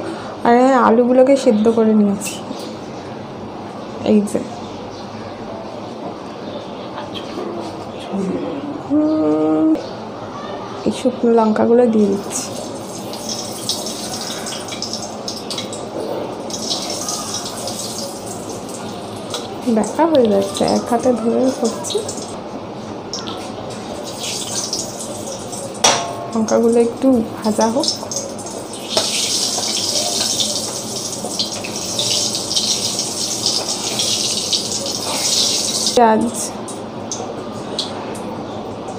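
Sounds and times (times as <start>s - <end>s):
chillies sizzling in hot oil: 12.0s - 22.4s, 23.2s - 36.5s.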